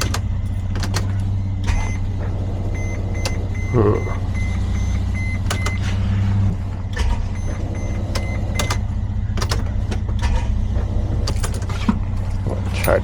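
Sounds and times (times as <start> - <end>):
sharp clicks: 0.0 - 2.0, 4.4 - 5.8, 6.9 - 10.4
starter cranking engine: 0.0 - 13.0
steady engine hum: 0.0 - 13.0.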